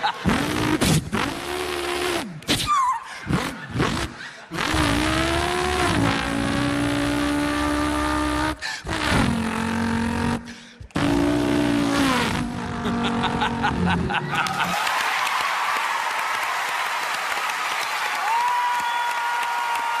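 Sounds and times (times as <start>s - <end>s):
man imitating car engine: 0.0s - 14.7s.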